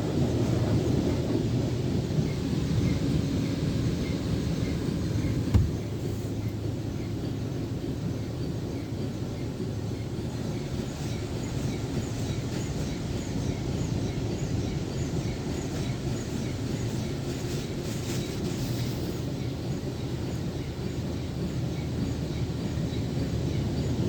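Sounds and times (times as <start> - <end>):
car wash machine rumbling: 3.0 - 6.6.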